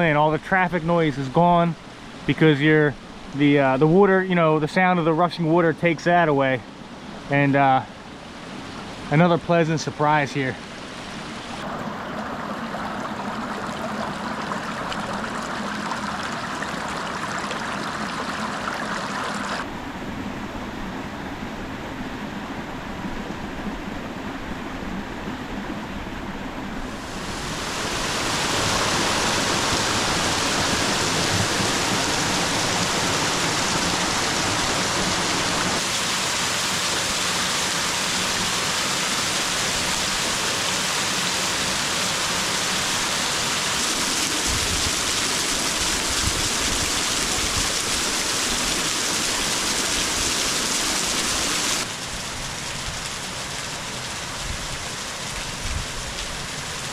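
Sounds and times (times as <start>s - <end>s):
small waterfall rushing over rock: 9.6s - 19.7s, 26.9s - 56.9s.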